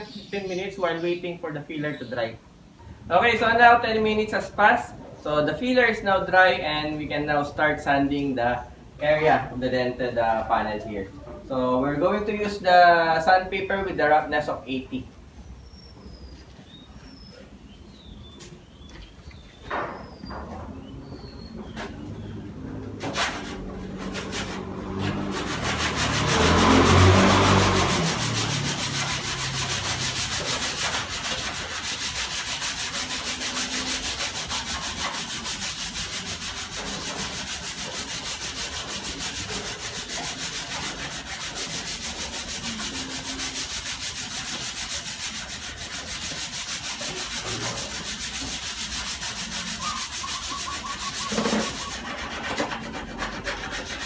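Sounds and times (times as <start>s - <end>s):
sandpaper rubbing on filler: 22.9s - 54.0s.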